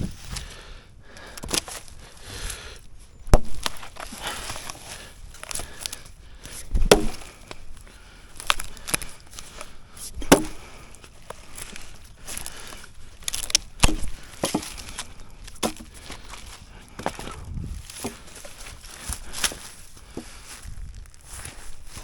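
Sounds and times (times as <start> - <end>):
axe chopping wood: 1.4 - 1.8, 3.3 - 4.5, 6.5 - 7.6, 10.2 - 10.8, 13.2 - 16.4, 18.0 - 18.3
handling noise: 3.0 - 22.0.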